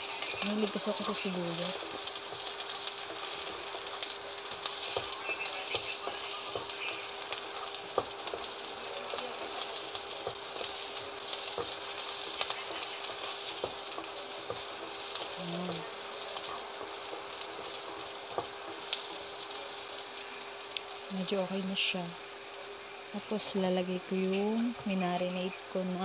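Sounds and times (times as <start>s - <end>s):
spatula scraping wok: 0.0s - 19.4s
garlic and onion sizzling in oil: 0.0s - 26.0s.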